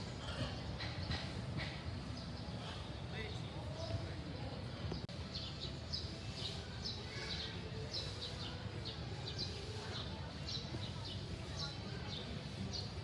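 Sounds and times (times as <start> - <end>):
low background noise: 0.0 - 13.0
small birds chirping: 0.0 - 13.0.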